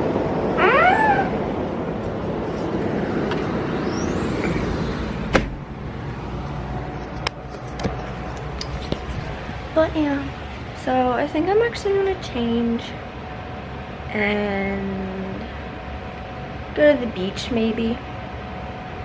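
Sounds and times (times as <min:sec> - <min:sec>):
street traffic: 0:00.0 - 0:19.0
gull crying: 0:00.5 - 0:01.6.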